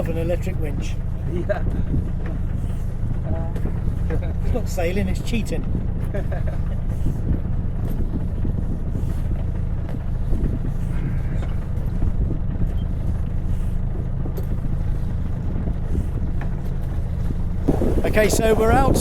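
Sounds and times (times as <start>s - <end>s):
boat engine droning: 0.0s - 19.0s
wind noise: 1.4s - 19.0s
water rushing: 17.6s - 19.0s.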